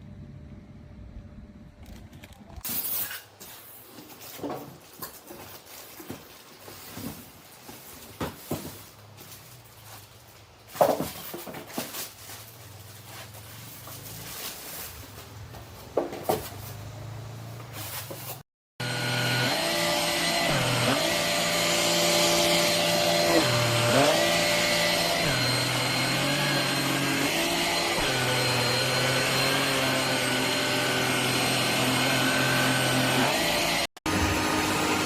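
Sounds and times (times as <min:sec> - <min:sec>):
vacuum motor hum: 0:18.8 - 0:35.0.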